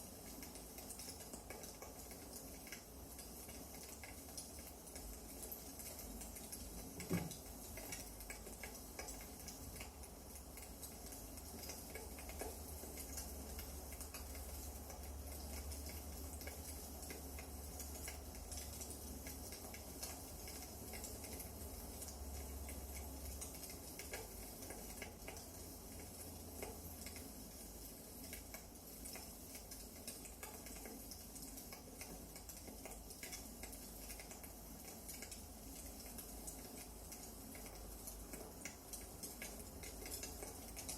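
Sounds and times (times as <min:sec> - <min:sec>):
faint steady hiss: 0:00.0 - 0:40.9
firewood crackling and popping: 0:00.0 - 0:40.9.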